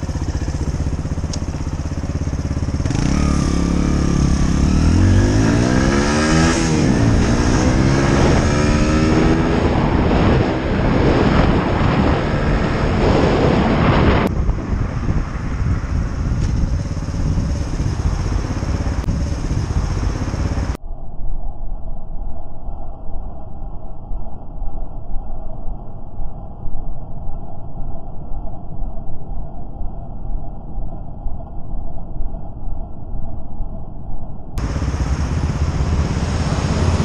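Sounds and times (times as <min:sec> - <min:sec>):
motorcycle engine accelerating: 0:00.0 - 0:20.8, 0:34.6 - 0:37.0
rushing riding noise: 0:00.0 - 0:20.8, 0:34.6 - 0:37.0.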